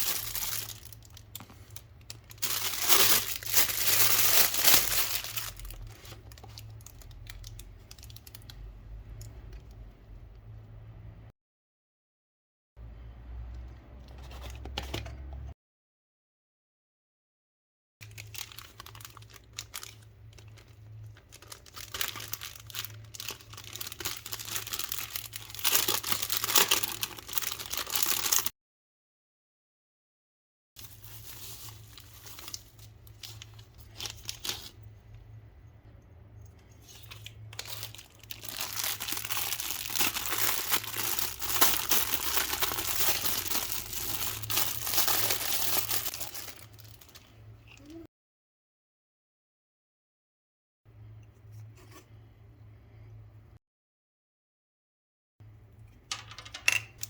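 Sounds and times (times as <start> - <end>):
plastic packaging crinkling: 0.0 - 8.6, 18.0 - 28.5, 30.8 - 34.9, 36.8 - 47.4.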